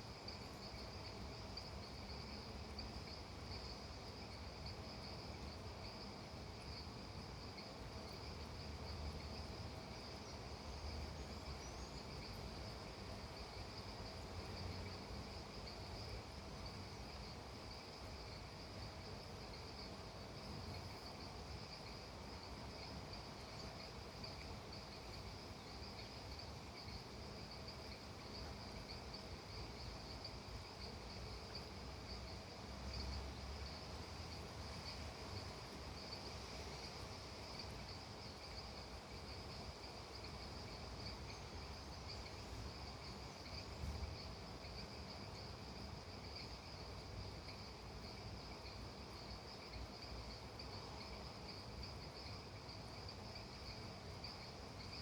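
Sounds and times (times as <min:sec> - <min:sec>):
insects trilling: 0:00.2 - 0:55.0.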